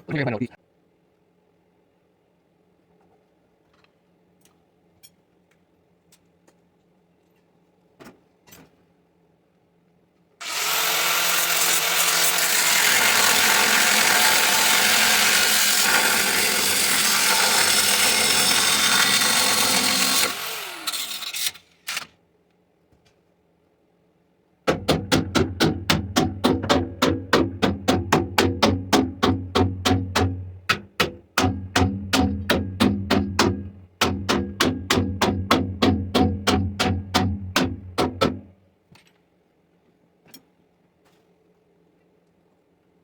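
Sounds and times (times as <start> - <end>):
handheld power tool running: 10.4 - 22.0.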